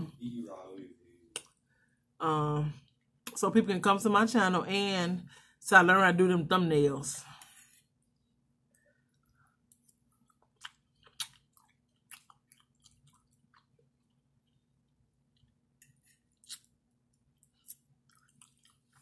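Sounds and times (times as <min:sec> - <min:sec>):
wet chewing and lip smacks: 0:08.2 - 0:19.0.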